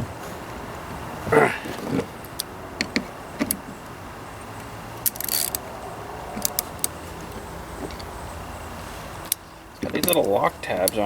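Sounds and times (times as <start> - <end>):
hand tools and bolts clinking: 1.4 - 3.8, 9.2 - 11.0.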